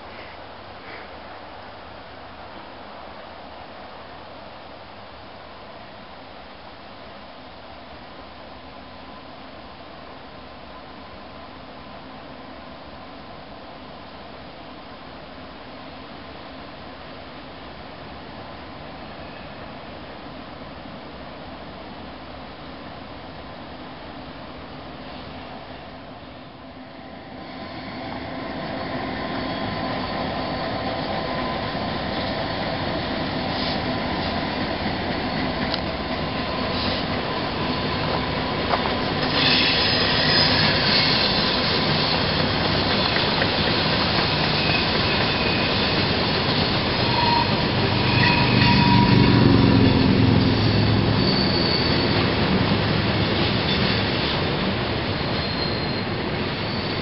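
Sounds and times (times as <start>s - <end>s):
freight train rumbling past: 15.6s - 57.0s
high wheel squeal: 27.4s - 34.4s, 36.4s - 57.0s.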